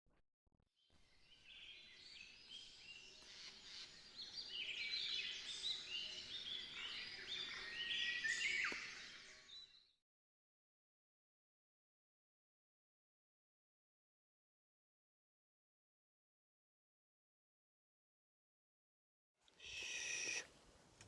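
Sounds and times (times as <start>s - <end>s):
birds chirping in chorus: 19.6s - 20.5s.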